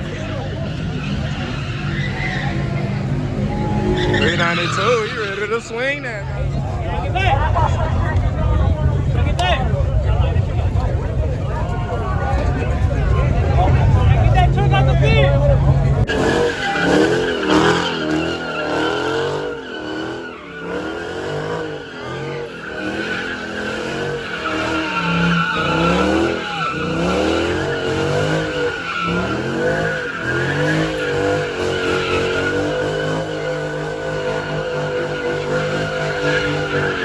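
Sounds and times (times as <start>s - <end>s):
tyres squealing: 0.0s - 6.8s, 14.2s - 37.0s
car engine revving: 0.0s - 37.0s.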